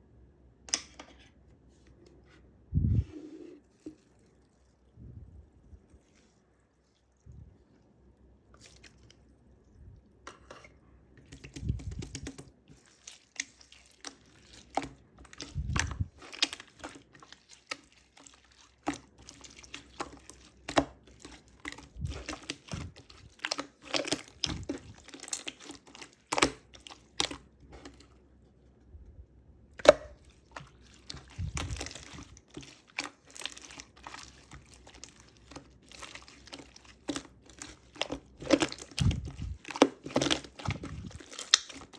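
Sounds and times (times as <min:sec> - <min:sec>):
slime squished by hand: 0:11.3 - 0:28.2, 0:29.7 - 0:41.9.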